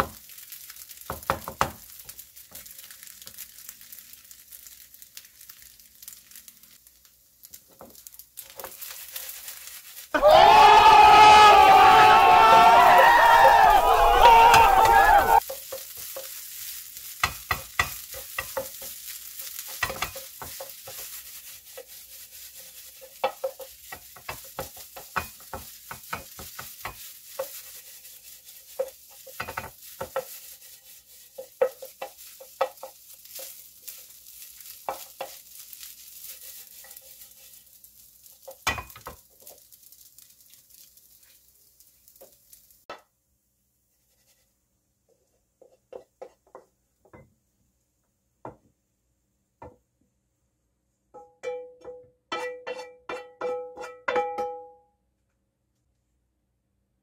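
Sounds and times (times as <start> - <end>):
spatula stirring and scraping: 0.0 - 10.1, 15.4 - 42.8, 43.9 - 46.8, 52.3 - 54.2
rice sizzling in a frying pan: 0.0 - 54.5
spatula knocking on pan: 1.1 - 1.8, 45.6 - 47.3, 51.2 - 54.7.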